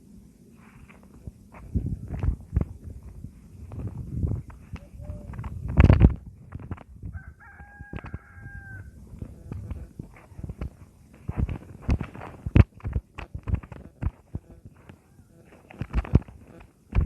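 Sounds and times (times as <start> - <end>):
rooster crowing: 7.0 - 9.5, 14.8 - 15.6.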